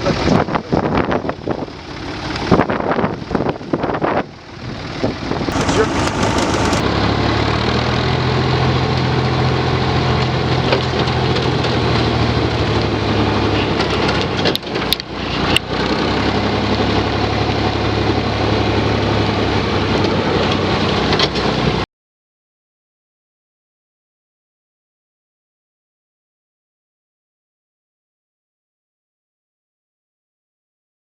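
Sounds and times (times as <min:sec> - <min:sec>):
tractor engine running: 0:01.4 - 0:21.8.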